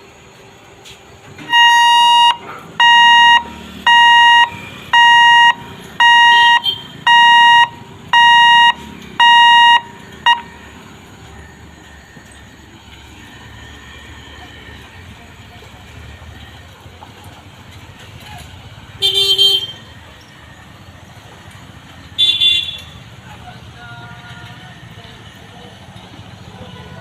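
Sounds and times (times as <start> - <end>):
electronic warning beeps: 1.4 - 12.6.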